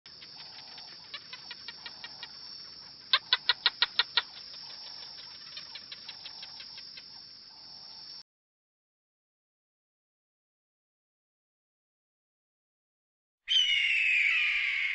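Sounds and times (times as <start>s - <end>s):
rapid sharp clicking calls: 0.1s - 7.3s
high insect drone: 0.1s - 8.2s, 13.6s - 14.9s.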